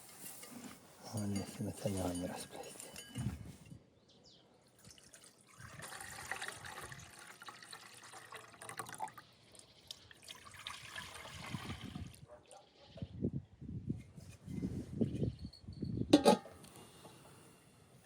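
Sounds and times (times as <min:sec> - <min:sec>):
liquid trickling and splashing: 0:04.7 - 0:12.2.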